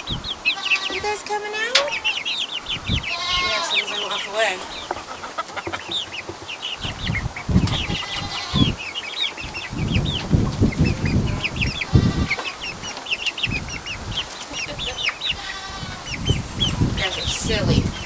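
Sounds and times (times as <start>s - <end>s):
chickens clucking: 0.0s - 18.0s
low rumbling thumps: 5.6s - 8.8s, 9.4s - 15.0s.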